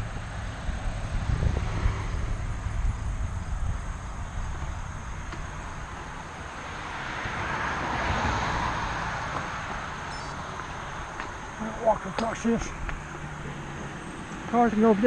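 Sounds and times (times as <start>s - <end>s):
wind rumble on microphone: 0.0s - 6.6s
car tyres passing on road: 0.0s - 15.0s.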